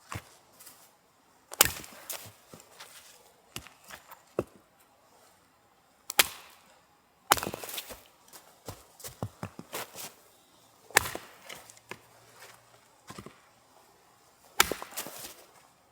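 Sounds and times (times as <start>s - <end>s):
firewood being chopped: 1.5s - 4.6s, 6.1s - 6.7s, 7.3s - 10.2s, 10.9s - 13.5s, 14.5s - 15.6s.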